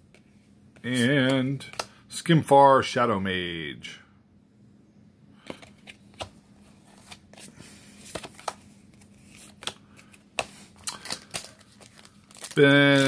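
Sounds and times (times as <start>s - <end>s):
playing cards being shuffled: 0.8s - 1.9s, 5.5s - 13.0s.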